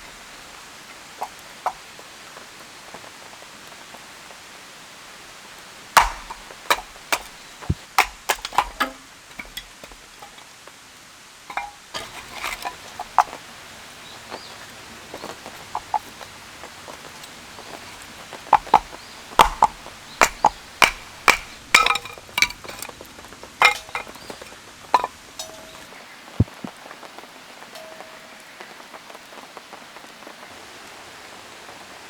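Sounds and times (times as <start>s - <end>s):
rain hiss: 0.0s - 32.0s
sharp knocks and clicks: 6.0s - 10.4s, 18.6s - 22.9s, 23.6s - 25.8s.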